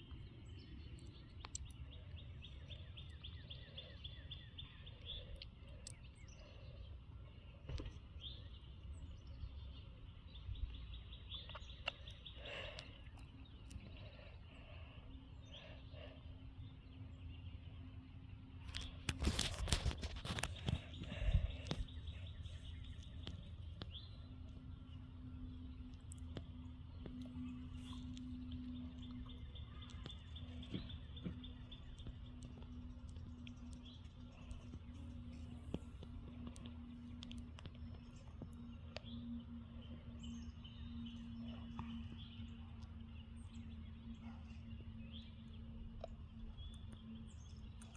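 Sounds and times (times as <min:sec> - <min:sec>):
small birds chirping: 0:00.0 - 0:47.9
steady low hum: 0:00.0 - 0:47.9
wind rumble on microphone: 0:18.7 - 0:44.2.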